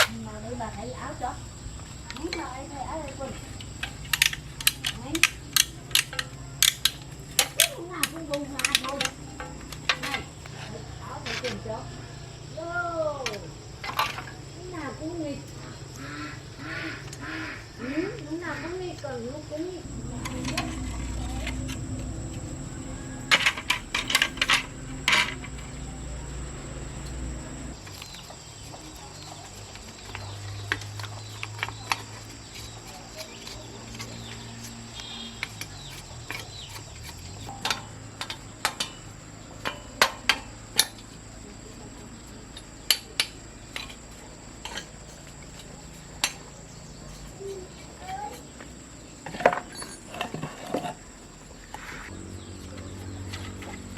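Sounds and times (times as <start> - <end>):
low steady hum: 19.6 - 28.1.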